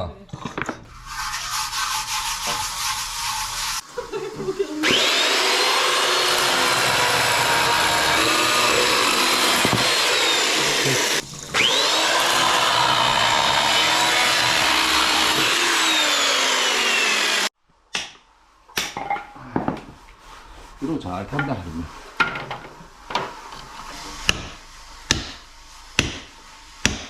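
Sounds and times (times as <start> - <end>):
electric power tool whining: 4.8 - 17.5.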